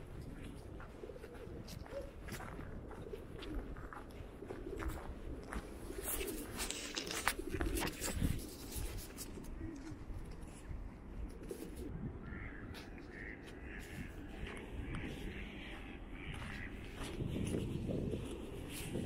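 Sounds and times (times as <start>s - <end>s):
birds calling: 12.1s - 17.2s.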